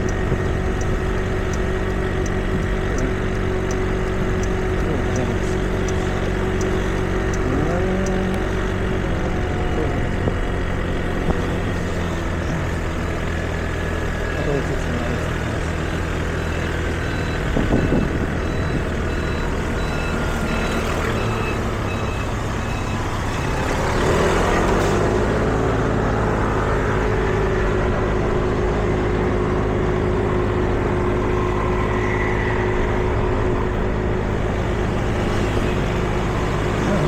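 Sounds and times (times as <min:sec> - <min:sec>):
vehicle engines running: 0:00.0 - 0:37.0
short electronic beeps: 0:16.4 - 0:23.6.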